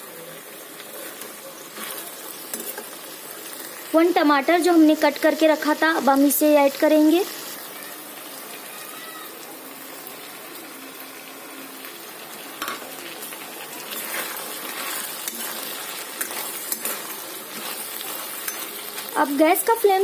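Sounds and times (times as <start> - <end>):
vegetables sizzling in hot oil: 0.0 - 20.0
spatula scraping and clicking on pan: 0.8 - 3.0, 13.9 - 19.1.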